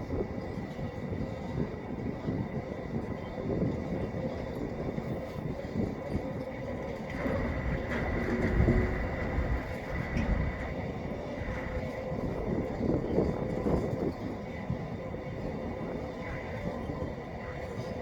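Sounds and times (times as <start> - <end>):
freight train rumble: 0.0 - 18.0
wheels clicking: 6.9 - 12.2.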